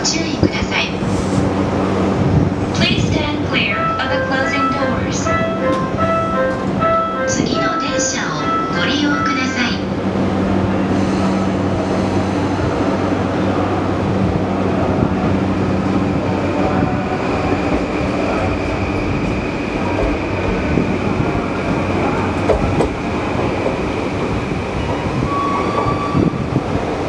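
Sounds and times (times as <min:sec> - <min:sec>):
higher steady tone: 0:03.4 - 0:10.0
train wheels and motors rumbling: 0:09.8 - 0:27.0.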